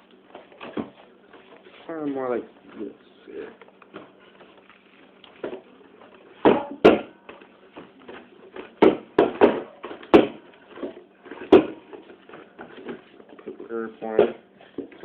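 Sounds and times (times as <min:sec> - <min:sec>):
knocks on a hard surface: 0:08.8 - 0:10.4.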